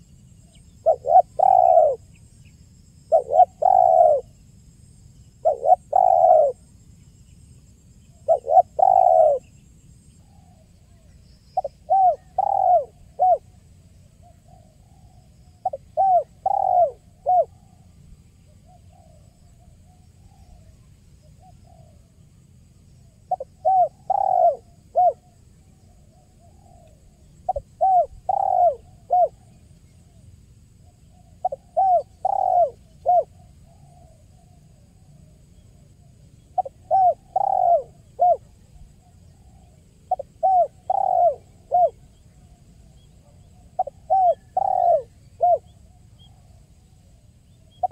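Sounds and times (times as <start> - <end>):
dove cooing: 0.8 - 2.1, 3.1 - 4.4, 5.4 - 6.6, 8.2 - 9.6, 10.3 - 13.6, 14.3 - 17.8, 21.3 - 22.1, 23.3 - 30.2, 31.1 - 35.3, 36.4 - 46.6, 47.6 - 47.9.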